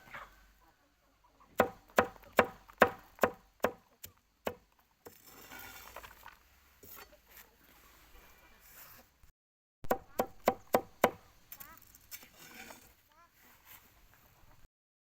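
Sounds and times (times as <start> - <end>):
faint rustle: 11.6 - 14.7.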